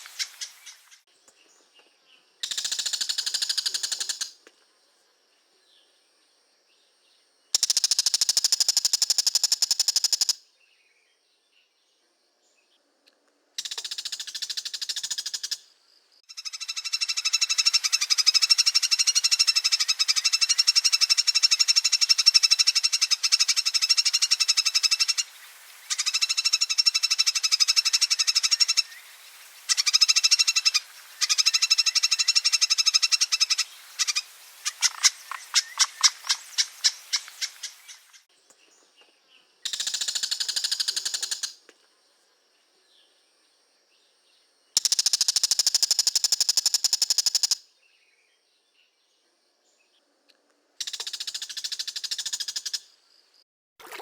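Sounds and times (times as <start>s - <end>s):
bird chattering: 29.7s - 38.2s.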